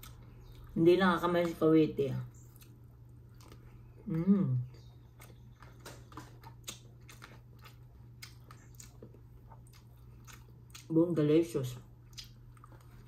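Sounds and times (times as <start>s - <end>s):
steady low hum: 0.0s - 13.0s
chewing mouth clicks and smacks: 2.3s - 4.0s, 4.7s - 11.0s, 12.0s - 13.0s.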